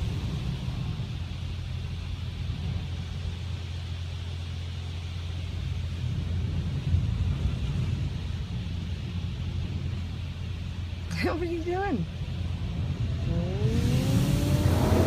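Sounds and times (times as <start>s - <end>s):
car wash machinery rumble: 0.0s - 15.0s
hiss: 13.3s - 15.0s.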